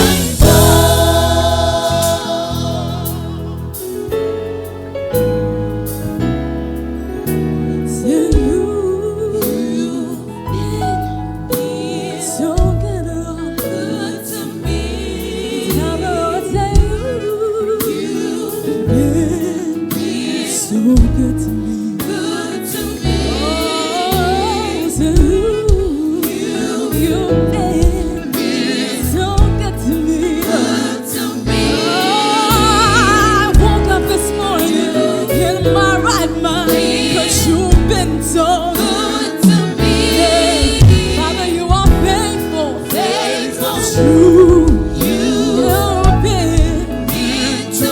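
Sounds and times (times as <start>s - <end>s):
drums: 0.0s - 4.8s, 8.2s - 9.7s, 12.6s - 14.4s, 15.6s - 18.5s, 20.9s - 47.9s
choir singing: 0.0s - 4.9s, 7.0s - 47.9s
bass: 0.0s - 47.9s
keyboard: 0.0s - 47.9s.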